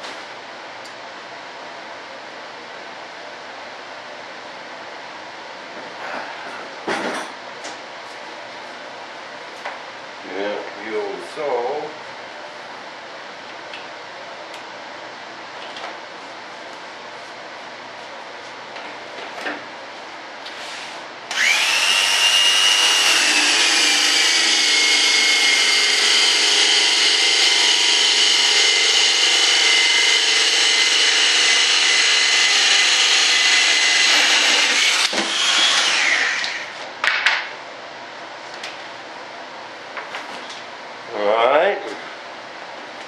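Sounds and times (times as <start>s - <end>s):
electric power saw cutting wood: 21.3s - 36.8s
saw blade spinning down: 21.3s - 36.8s.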